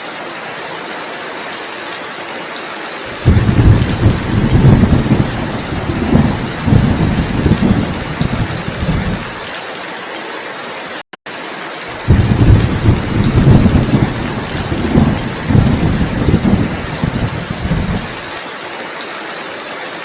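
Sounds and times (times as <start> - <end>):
heavy rain hiss: 0.3 - 20.0
low rumble of thunder: 3.1 - 9.4, 11.9 - 18.3.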